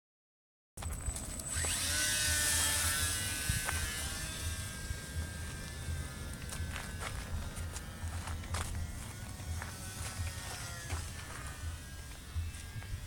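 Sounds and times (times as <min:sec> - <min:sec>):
electric motor whine: 0:00.8 - 0:13.0
low rumble: 0:00.8 - 0:13.0.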